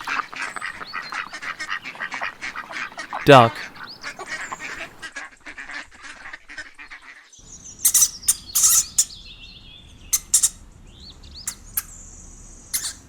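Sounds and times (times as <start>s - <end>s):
ducks quacking: 0.0s - 7.3s
small birds chirping: 0.0s - 13.0s.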